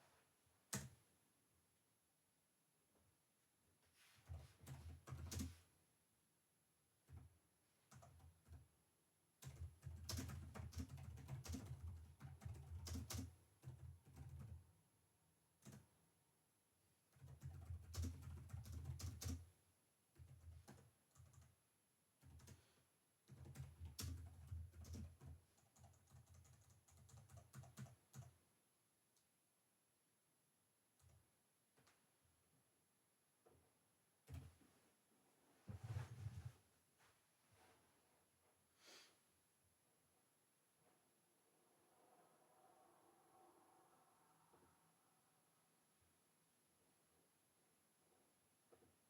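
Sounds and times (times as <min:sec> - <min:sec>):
typing on computer keyboard: 0:04.3 - 0:05.6, 0:07.9 - 0:08.7, 0:09.4 - 0:14.6, 0:15.6 - 0:15.9, 0:17.1 - 0:19.5, 0:20.1 - 0:21.6, 0:22.2 - 0:22.6, 0:23.3 - 0:28.4.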